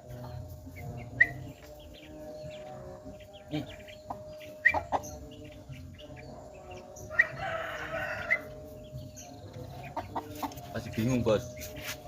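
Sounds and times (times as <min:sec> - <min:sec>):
rooster crowing: 0:07.0 - 0:08.6.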